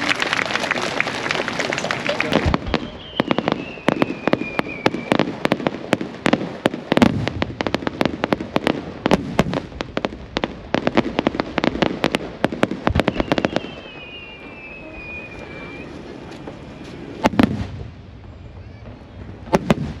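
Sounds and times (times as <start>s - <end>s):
fireworks cracking and popping: 0.0s - 20.0s
firework whistle gliding down: 2.4s - 5.3s, 12.9s - 17.2s.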